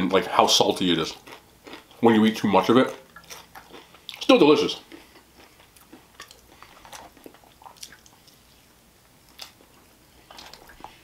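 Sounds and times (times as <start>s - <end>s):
person chewing and biting: 1.1s - 2.0s, 3.0s - 8.5s, 9.3s - 11.0s
wet mouth smacks and clicks: 7.6s - 8.2s.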